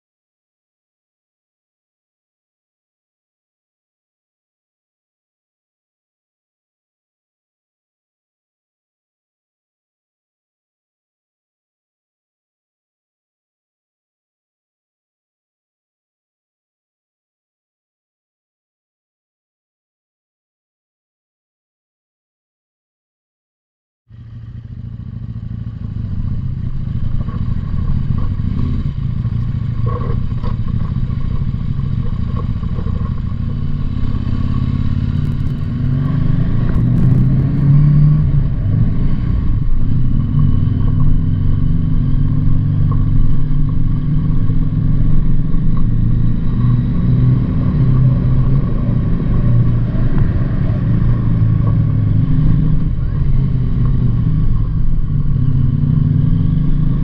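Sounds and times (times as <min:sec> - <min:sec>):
motorcycle engine running: 0:24.1 - 0:57.0.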